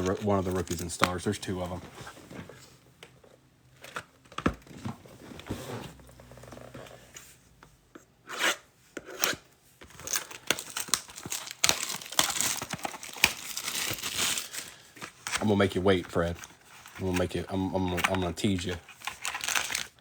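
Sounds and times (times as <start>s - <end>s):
plastic wrapping crinkling: 10.0s - 20.0s.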